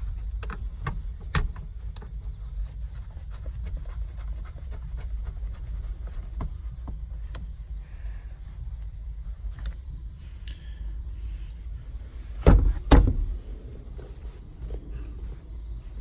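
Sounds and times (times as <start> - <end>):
steady low rumble: 0.0 - 16.0
car seat clicks and knocks: 0.4 - 2.0, 6.2 - 7.5, 12.4 - 14.9.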